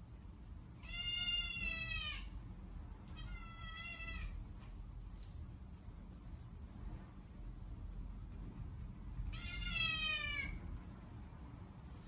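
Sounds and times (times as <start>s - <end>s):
cat meowing: 0.8s - 2.4s, 3.1s - 4.4s, 9.3s - 10.6s.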